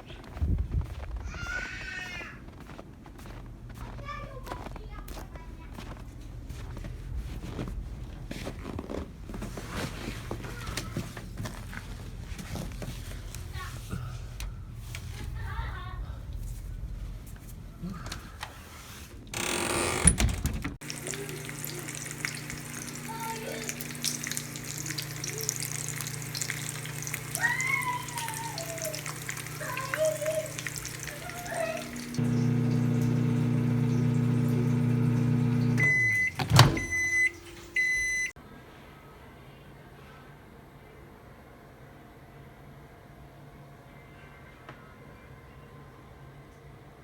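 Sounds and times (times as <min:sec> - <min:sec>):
microwave beeping: 0:19.4 - 0:38.4
microwave oven humming: 0:19.4 - 0:38.4.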